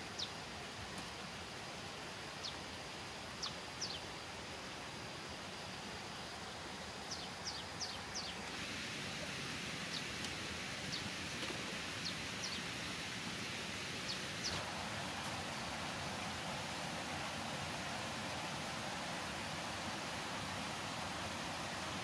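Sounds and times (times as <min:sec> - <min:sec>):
steady outdoor hiss: 0:00.0 - 0:22.0
small bird chirping: 0:07.1 - 0:08.4, 0:14.0 - 0:14.7.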